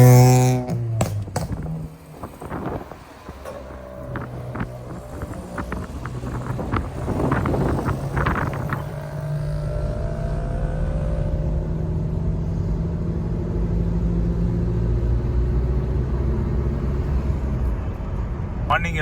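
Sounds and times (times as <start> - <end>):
car engine droning: 0.0 - 19.0
faint tone sinking in pitch: 8.7 - 12.6.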